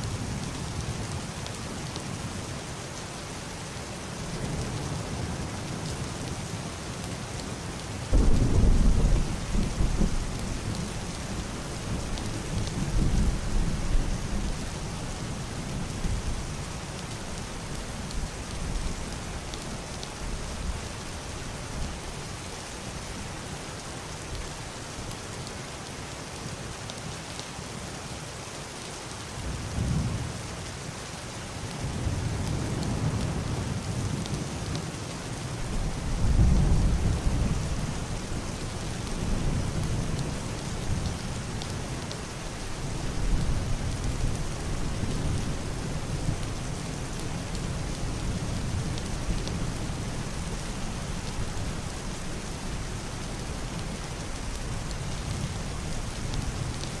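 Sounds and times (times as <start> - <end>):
heavy rain on roof and window: 0.0 - 57.0
muffled thunder rolling: 8.1 - 13.5.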